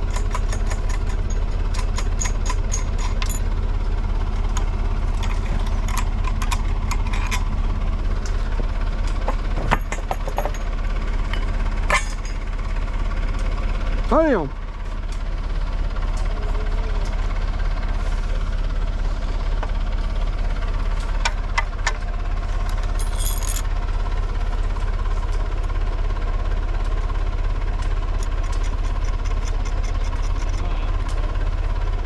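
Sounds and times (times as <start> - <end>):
sharp metallic clinks: 0.0 - 3.5, 9.7 - 10.7, 22.9 - 23.7
engine idling: 0.0 - 32.0.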